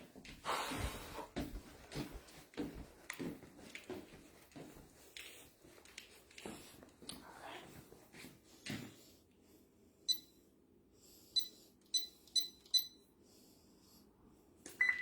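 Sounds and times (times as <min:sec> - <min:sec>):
person breathing: 0:00.4 - 0:01.4
alarm keypad beeps: 0:10.1 - 0:10.3, 0:11.4 - 0:13.0, 0:14.7 - 0:15.0.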